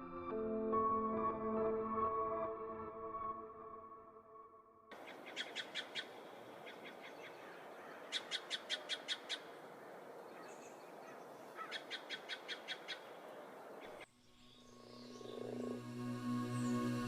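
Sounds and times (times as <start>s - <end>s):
background hiss: 4.9s - 17.0s
bird calling sharp notes: 5.0s - 9.6s.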